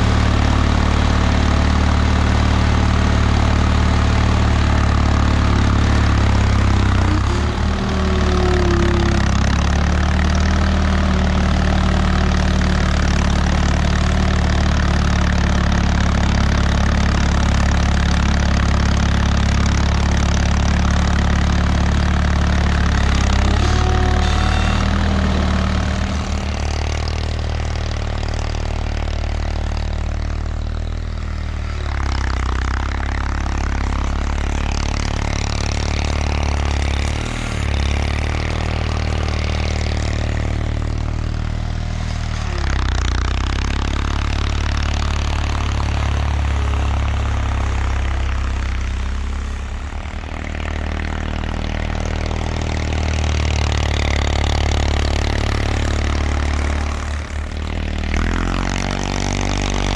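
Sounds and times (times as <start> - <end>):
twin engine running: 0.0 - 59.9.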